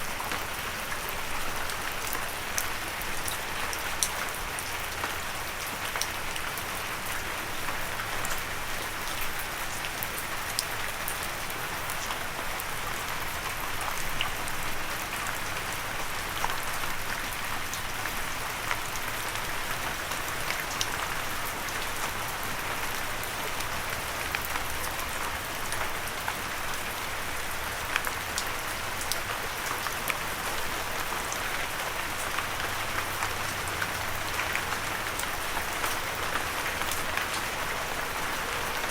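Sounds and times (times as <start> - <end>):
water drips and patters: 0.0 - 38.9.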